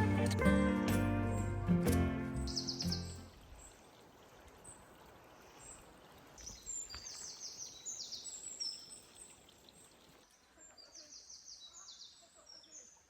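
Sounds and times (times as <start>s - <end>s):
small songbird singing: 0.0s - 3.3s, 6.4s - 9.3s.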